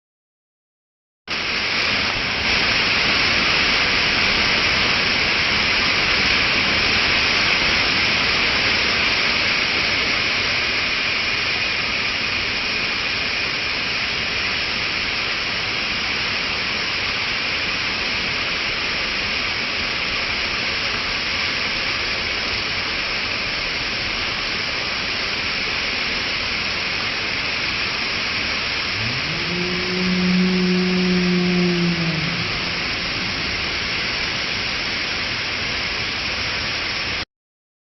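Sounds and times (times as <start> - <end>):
running water rushing: 1.3 - 37.2.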